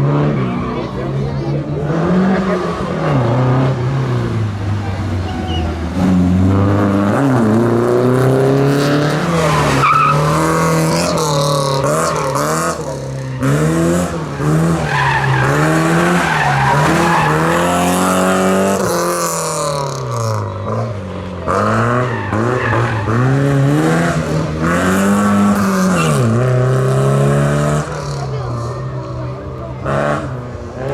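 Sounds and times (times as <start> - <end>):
rally car engine revving: 0.0 - 30.9
tyre squeal: 5.2 - 5.8, 9.2 - 18.4.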